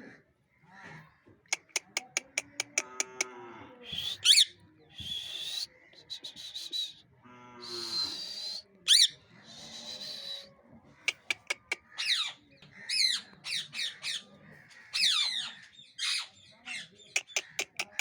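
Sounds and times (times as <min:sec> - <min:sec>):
parrot clicks: 0:01.5 - 0:03.2, 0:11.1 - 0:11.8, 0:17.2 - 0:18.0
parrot shrill screeches: 0:04.2 - 0:04.5.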